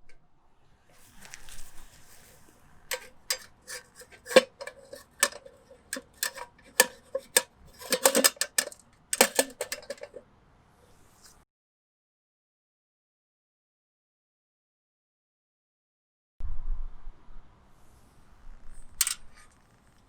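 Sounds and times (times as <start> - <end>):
metal cookware clinking: 2.9 - 10.2, 19.0 - 19.2.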